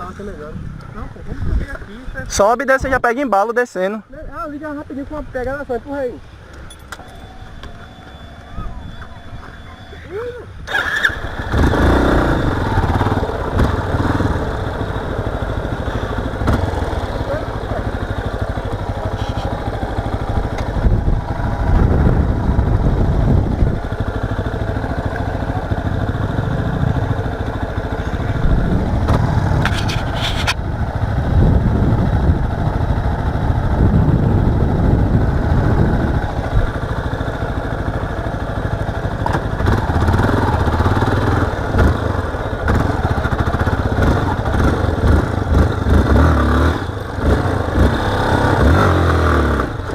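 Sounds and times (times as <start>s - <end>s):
motorcycle engine revving: 10.6s - 49.9s.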